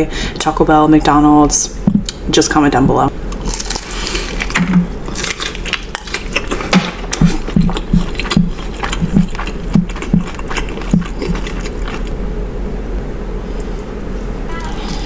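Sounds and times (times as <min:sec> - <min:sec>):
crunchy food being chewed: 0:03.3 - 0:12.2.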